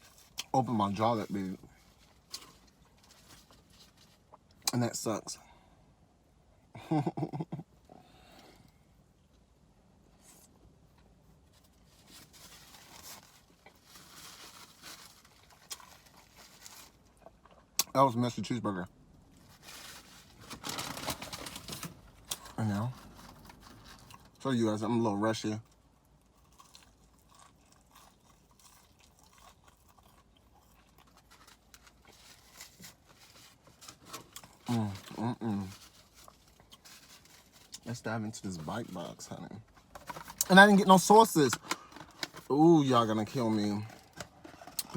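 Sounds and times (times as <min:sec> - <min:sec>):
food wrapper crinkling: 0:11.5 - 0:17.6, 0:19.3 - 0:24.4, 0:25.6 - 0:38.0
chewing and crunching: 0:12.2 - 0:17.9, 0:21.8 - 0:24.4, 0:25.6 - 0:38.0.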